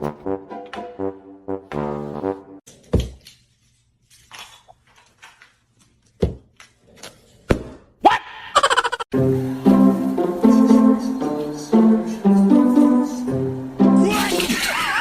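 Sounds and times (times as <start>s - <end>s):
music: 0.0s - 2.6s, 9.1s - 15.0s.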